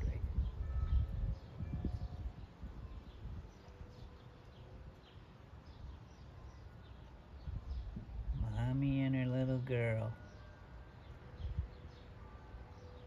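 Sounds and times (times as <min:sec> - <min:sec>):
wind buffeting microphone: 0:00.0 - 0:04.1, 0:07.3 - 0:09.8, 0:11.4 - 0:11.9.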